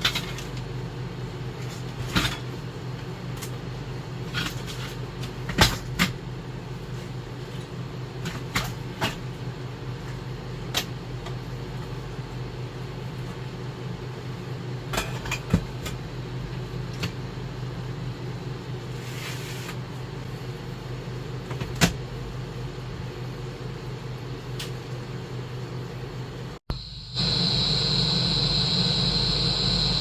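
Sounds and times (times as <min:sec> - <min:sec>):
machine humming: 0:26.7 - 0:30.0.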